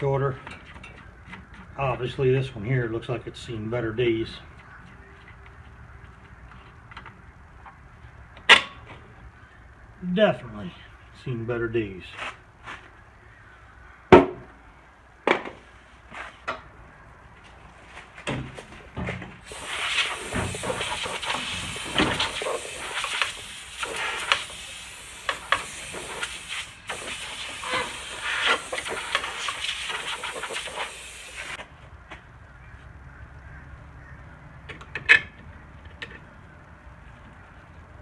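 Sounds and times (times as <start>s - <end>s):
pressurised hiss: 19.4s - 31.6s.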